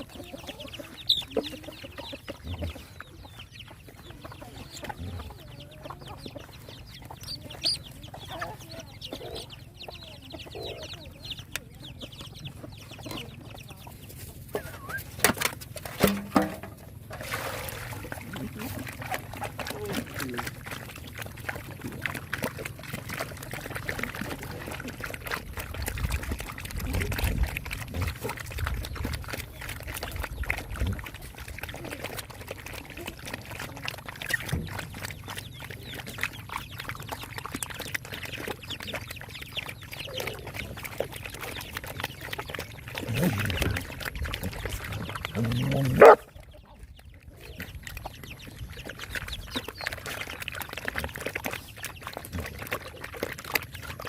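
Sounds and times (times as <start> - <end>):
dogs chewing and slurping: 0.0 - 54.0.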